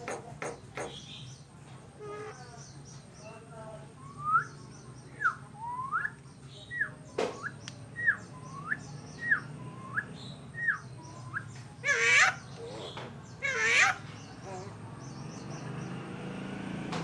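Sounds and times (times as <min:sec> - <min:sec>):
bird harsh rasping call: 0:00.0 - 0:01.3, 0:11.8 - 0:14.8.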